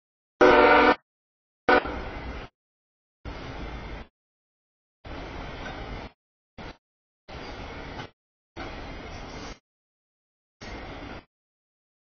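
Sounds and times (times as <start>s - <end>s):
train wheels rumbling on rail: 1.7s - 2.5s, 3.3s - 4.1s, 5.1s - 9.6s, 10.6s - 11.3s.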